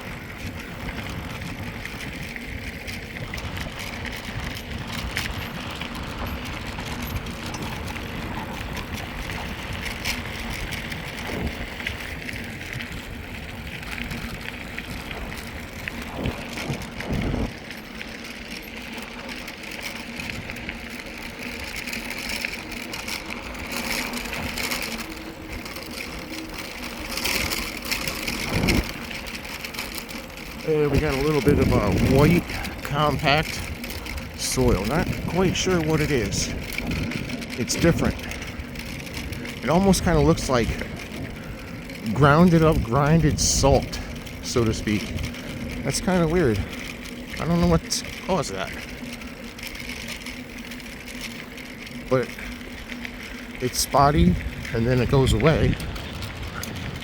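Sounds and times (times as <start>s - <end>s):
wind rumbling on microphone: 0.0s - 19.3s, 20.0s - 57.0s
bike tyre noise on trail: 0.0s - 57.0s.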